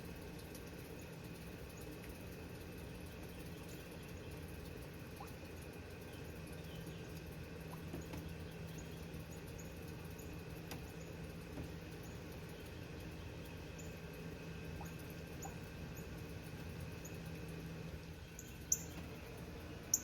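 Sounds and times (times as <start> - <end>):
steady low hum: 0.0 - 20.0
small bird chipping: 18.2 - 19.1.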